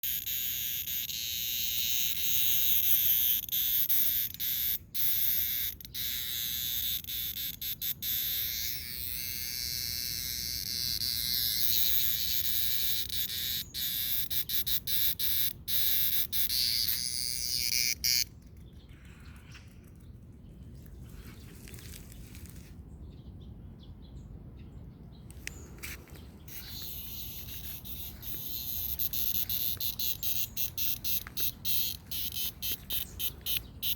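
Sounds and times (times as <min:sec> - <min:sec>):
cicada buzzing: 0:00.0 - 0:18.3, 0:26.5 - 0:33.9.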